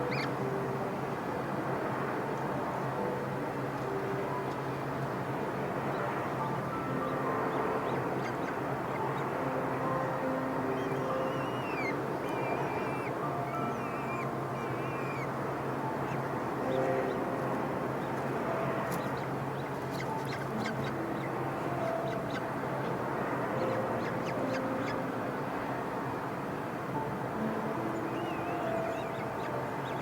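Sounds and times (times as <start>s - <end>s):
steady background hiss: 0.0s - 30.0s
birds chirping and squawking: 10.8s - 15.3s, 19.9s - 22.5s.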